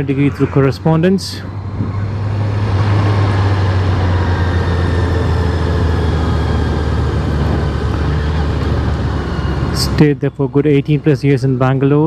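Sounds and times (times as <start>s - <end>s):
motorcycle engine cruising: 0.0s - 11.8s
wind rush on microphone: 1.5s - 9.2s.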